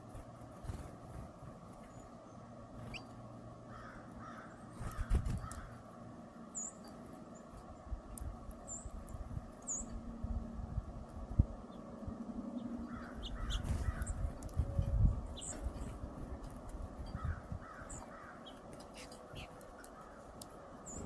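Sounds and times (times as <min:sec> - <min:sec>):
small bird chirping: 0:02.8 - 0:03.2, 0:06.5 - 0:07.6, 0:08.6 - 0:10.0, 0:12.5 - 0:16.0, 0:16.8 - 0:21.0
crows cawing: 0:03.7 - 0:05.8, 0:12.8 - 0:14.1, 0:17.1 - 0:18.6.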